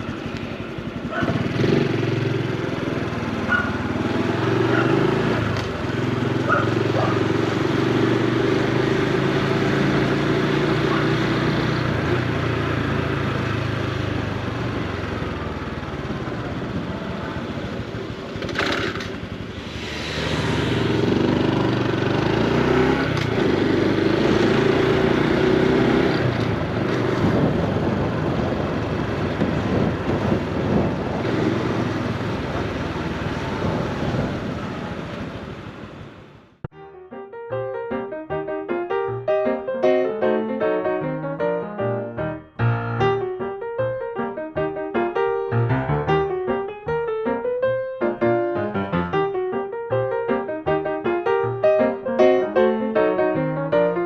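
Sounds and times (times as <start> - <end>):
motorcycle engine while riding: 0.0 - 36.6
brief whoosh: 19.5 - 21.5.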